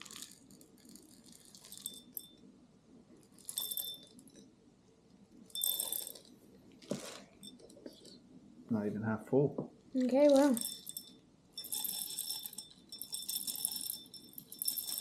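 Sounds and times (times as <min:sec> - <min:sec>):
peppercorns poured into peppermill: 0:00.0 - 0:02.1, 0:11.6 - 0:15.0.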